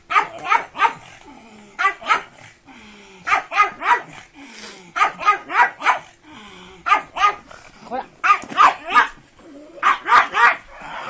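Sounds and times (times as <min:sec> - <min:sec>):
dog barking: 0:00.1 - 0:01.1, 0:01.8 - 0:02.4, 0:03.3 - 0:04.2, 0:05.0 - 0:06.1, 0:06.8 - 0:07.4, 0:08.2 - 0:09.2, 0:09.8 - 0:10.7.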